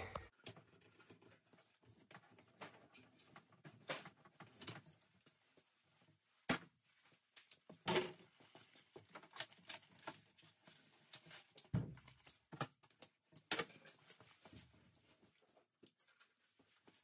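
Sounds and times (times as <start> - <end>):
clatter of plumbing work: 0.0 - 17.0.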